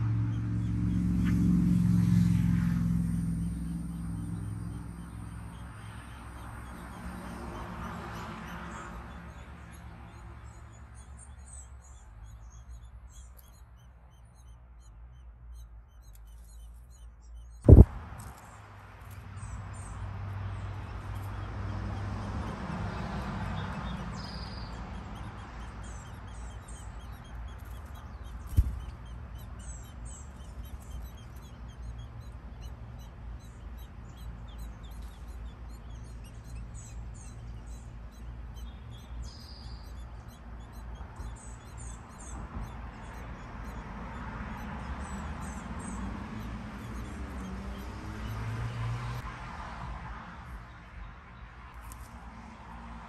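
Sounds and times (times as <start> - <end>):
small birds chirping: 0.0 - 53.0
steady low hum: 17.6 - 18.4
sharp thump: 17.7 - 18.3, 28.5 - 29.0.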